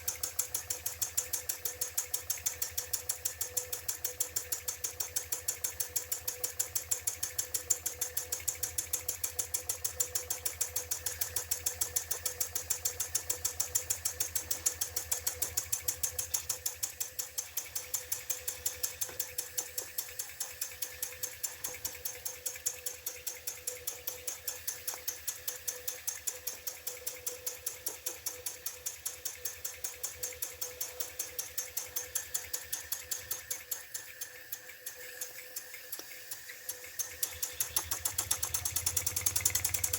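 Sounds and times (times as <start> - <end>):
model steam engine chuffing: 0.0 - 39.9.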